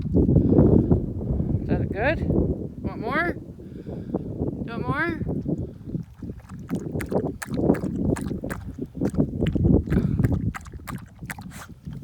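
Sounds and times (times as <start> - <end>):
wind rumble on microphone: 0.0 - 12.0
dog lapping water: 5.4 - 12.0.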